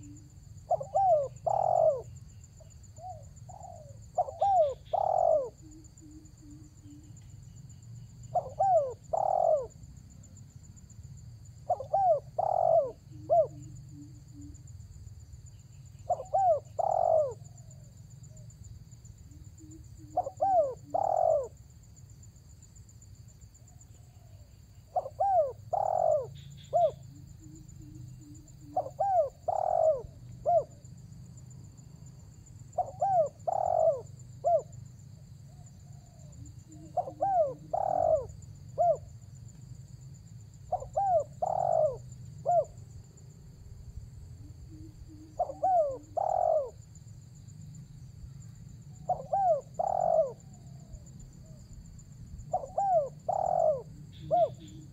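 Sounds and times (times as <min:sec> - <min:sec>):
dove cooing: 0:00.0 - 0:02.3, 0:03.0 - 0:07.2, 0:08.3 - 0:09.8, 0:11.6 - 0:14.7, 0:16.0 - 0:17.9, 0:19.6 - 0:21.6, 0:24.0 - 0:30.8, 0:32.8 - 0:34.8, 0:35.5 - 0:39.1, 0:40.6 - 0:42.8, 0:44.4 - 0:46.8, 0:48.9 - 0:51.6, 0:52.5 - 0:54.9.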